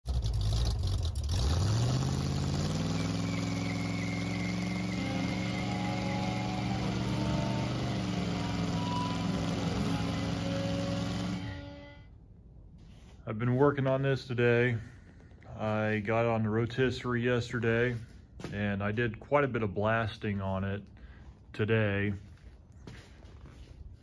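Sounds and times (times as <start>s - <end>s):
car engine revving: 0.0s - 12.0s
tire squealing on pavement: 0.7s - 12.0s.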